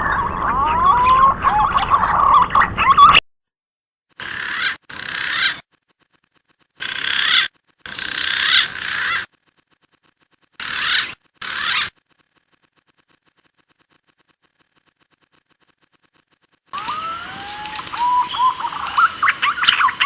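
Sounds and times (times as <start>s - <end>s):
harsh raspy bird call chattering: 4.2s - 5.6s, 6.8s - 9.4s, 10.6s - 12.0s, 16.8s - 20.0s.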